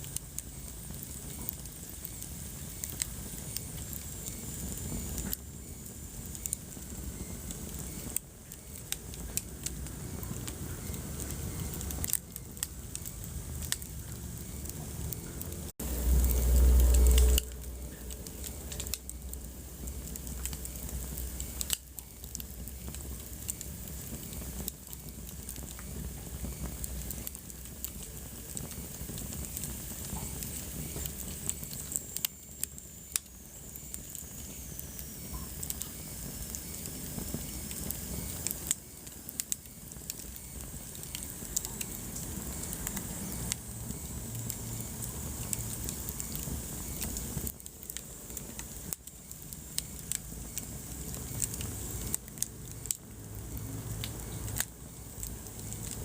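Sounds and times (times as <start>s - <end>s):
wood fire crackling and popping: 0.0s - 56.0s
loud low rumble: 13.5s - 20.1s.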